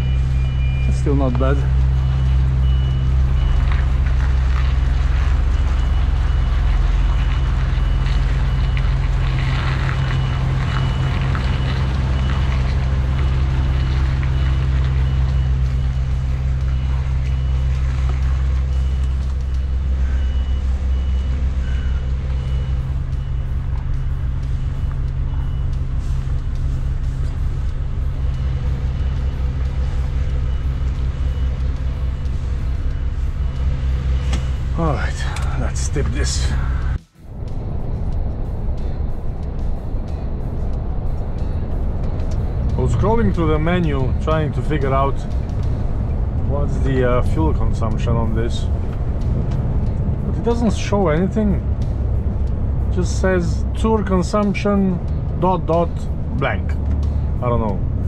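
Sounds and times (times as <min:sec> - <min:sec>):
faint high-pitched beep: 0:00.0 - 0:03.6, 0:18.7 - 0:26.0
diesel engine and road noise: 0:00.0 - 0:58.0.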